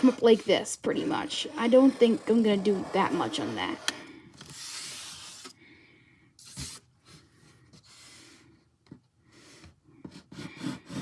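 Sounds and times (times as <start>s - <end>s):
pencil scratching on paper: 0.0s - 3.9s.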